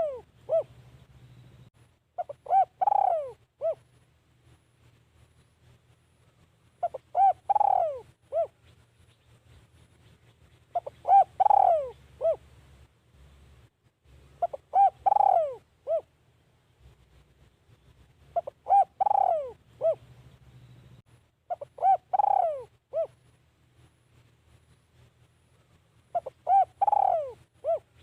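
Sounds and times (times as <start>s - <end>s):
dove cooing: 0.0s - 0.9s, 2.2s - 3.9s, 6.8s - 8.8s, 10.7s - 12.5s, 14.4s - 16.1s, 18.3s - 20.2s, 21.5s - 23.2s, 26.1s - 28.0s.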